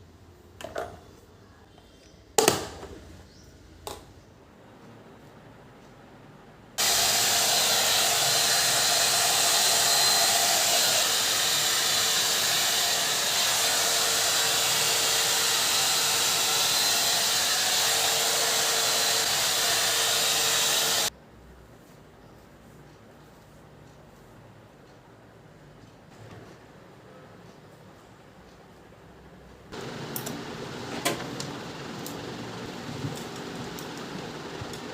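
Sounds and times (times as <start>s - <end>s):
hair dryer blowing: 6.8s - 21.1s, 29.8s - 34.9s
hair dryer switch: 29.8s - 32.2s.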